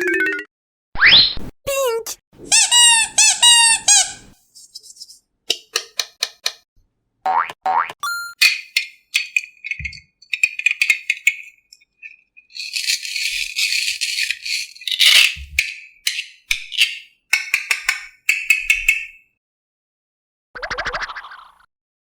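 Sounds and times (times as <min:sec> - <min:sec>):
small hard objects clattering: 0:08.4 - 0:16.3.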